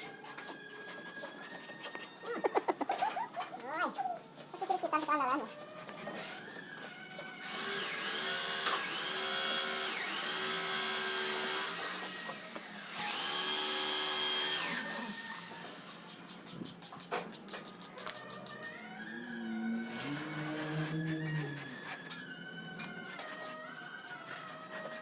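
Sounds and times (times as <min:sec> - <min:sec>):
electric drill spinning: 0:05.9 - 0:16.3, 0:18.0 - 0:25.0.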